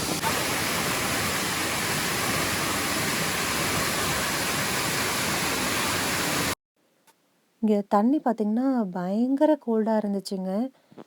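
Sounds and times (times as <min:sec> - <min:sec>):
small waterfall rushing: 0:00.0 - 0:06.6.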